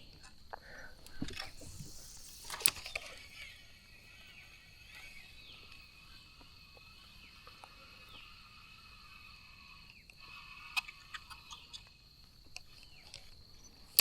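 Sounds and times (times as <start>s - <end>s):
bird chirps: 1.6s - 8.5s.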